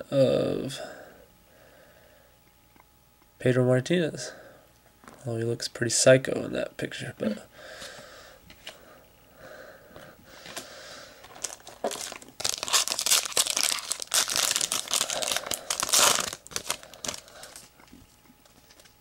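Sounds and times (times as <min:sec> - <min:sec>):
wrapper being torn and crinkled: 0:11.2 - 0:17.7.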